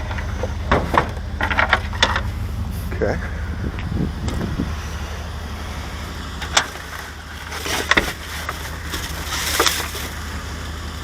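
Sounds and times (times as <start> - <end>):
junk being rummaged through: 0.0 - 10.6
steady low hum: 0.0 - 11.0.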